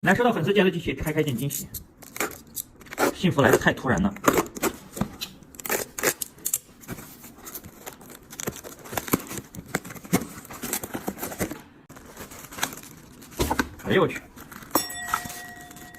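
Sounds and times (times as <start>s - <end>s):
packaging tearing and crinkling: 1.9s - 3.2s, 5.4s - 15.9s.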